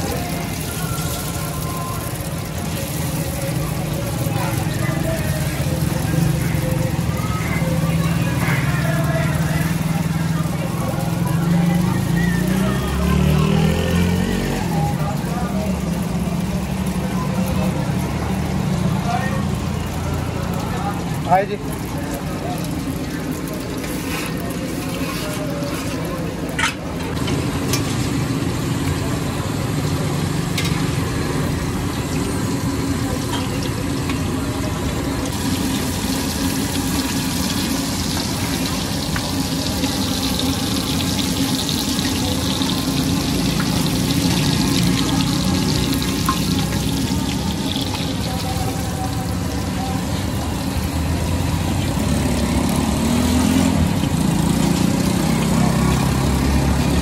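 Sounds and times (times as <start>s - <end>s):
low hum of engines: 0.0s - 57.0s
patties sizzling on griddle: 0.0s - 57.0s.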